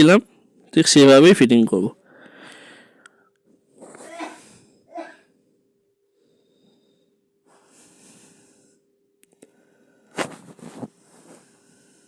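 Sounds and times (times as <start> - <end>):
faint steady hum: 0.0 - 12.0
soft plastic rubbing: 10.1 - 11.6.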